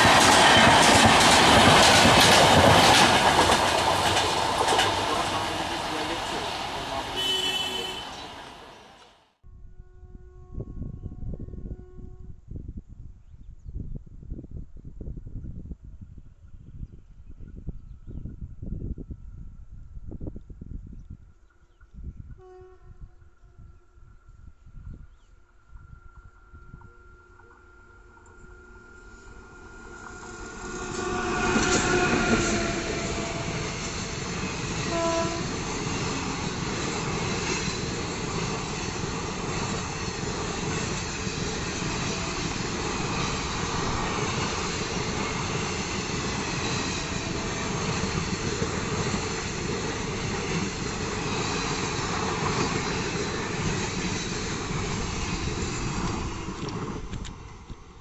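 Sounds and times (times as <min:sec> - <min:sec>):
train wheels clickety-clack: 0:00.0 - 0:07.0, 0:30.5 - 0:57.9
train horn: 0:05.0 - 0:12.5, 0:22.4 - 0:24.1, 0:30.7 - 0:34.0, 0:34.7 - 0:36.6, 0:41.8 - 0:42.7, 0:46.9 - 0:48.0.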